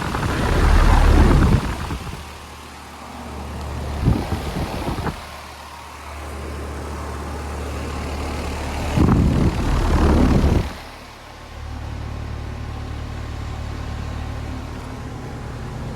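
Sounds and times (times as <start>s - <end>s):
irregular low rumble: 0.0s - 2.2s
condenser fan rushing: 0.0s - 15.9s.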